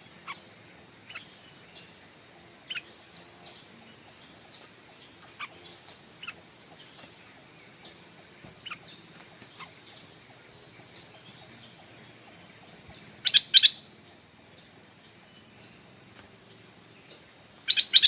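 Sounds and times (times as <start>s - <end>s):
bird calling sharp notes: 13.2s - 14.0s, 17.7s - 18.0s.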